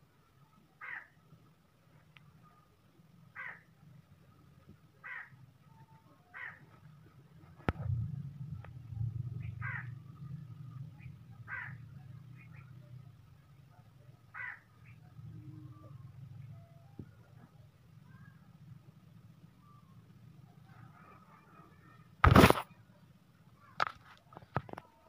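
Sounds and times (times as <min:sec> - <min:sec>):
bird harsh calls: 0:03.4 - 0:03.6, 0:09.4 - 0:09.9, 0:10.9 - 0:12.8, 0:14.3 - 0:15.1
low rumble: 0:07.0 - 0:14.2.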